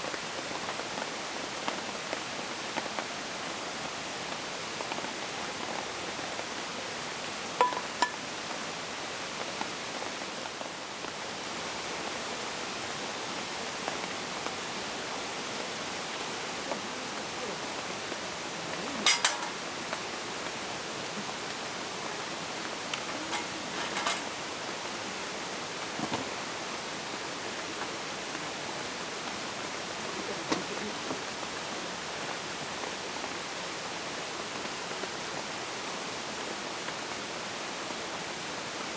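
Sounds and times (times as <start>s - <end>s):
rain falling in forest: 0.0s - 38.9s.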